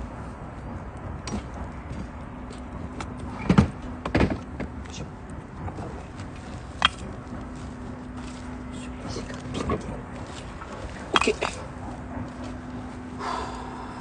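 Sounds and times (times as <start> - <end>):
bonfire crackling and popping: 0.4 - 11.2.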